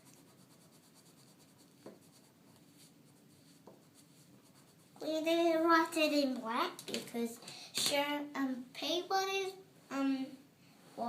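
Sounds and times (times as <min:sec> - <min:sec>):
colouring strokes on paper: 0:00.0 - 0:05.1.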